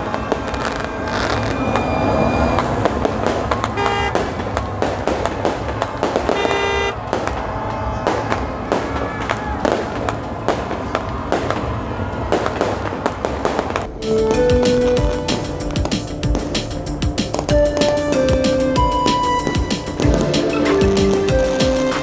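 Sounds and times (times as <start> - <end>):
fireworks and firecrackers banging: 0.0 - 22.0
short horn toots: 3.8 - 4.2, 6.4 - 7.0.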